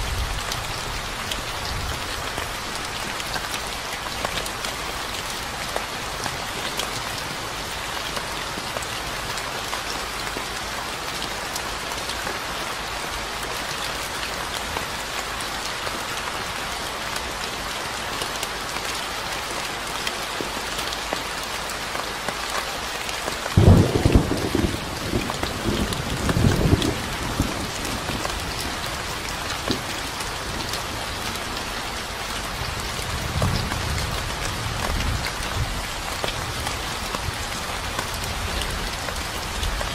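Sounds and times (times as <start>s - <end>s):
steady rain falling: 0.0s - 39.9s
thunder rumbling: 23.6s - 28.7s.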